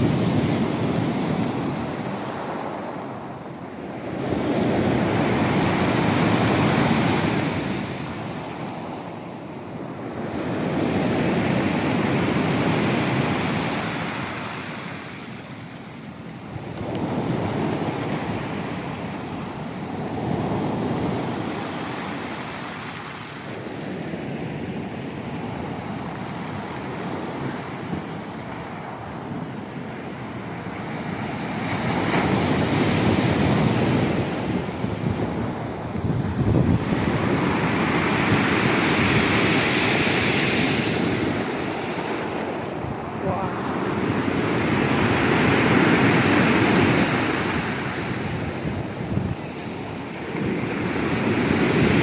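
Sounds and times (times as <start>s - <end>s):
waves breaking: 25.4s - 52.0s.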